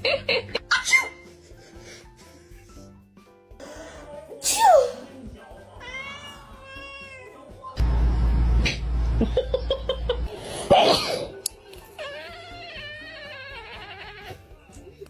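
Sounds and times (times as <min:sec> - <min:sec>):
cat meowing: 0:05.8 - 0:07.4, 0:11.9 - 0:14.4
loud low rumble: 0:07.8 - 0:10.4.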